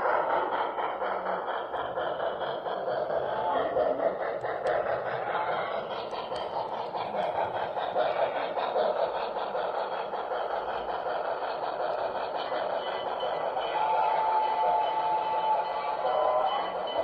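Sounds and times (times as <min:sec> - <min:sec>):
model train running on track: 0:00.0 - 0:17.0.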